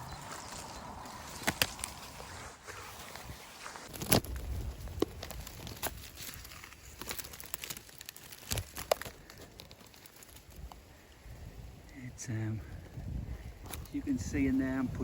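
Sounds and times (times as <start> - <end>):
undergrowth rustling and crackling: 0.0 - 15.0
twigs snapping: 0.1 - 10.9, 13.6 - 14.0.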